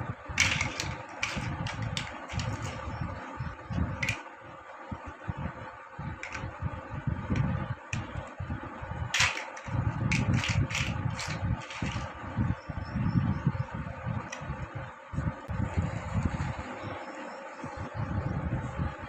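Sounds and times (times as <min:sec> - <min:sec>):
fan-like hum: 0:00.0 - 0:19.0
plastic blocks clicking: 0:00.4 - 0:02.9, 0:04.0 - 0:04.2, 0:06.2 - 0:06.5, 0:09.2 - 0:12.1.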